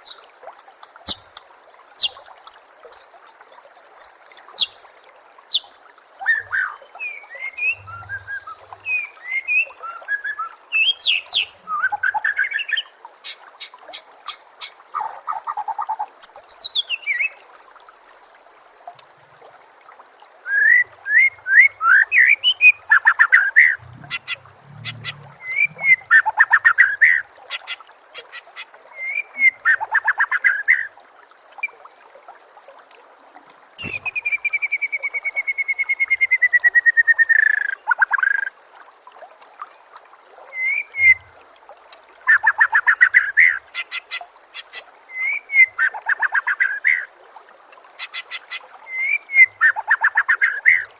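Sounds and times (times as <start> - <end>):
trickling stream: 0.0 - 50.9
bird singing whistles and trills: 5.5 - 12.9, 16.2 - 17.4, 20.5 - 27.2, 29.0 - 30.9, 33.8 - 38.5, 40.6 - 41.3, 45.1 - 47.1, 48.9 - 50.9.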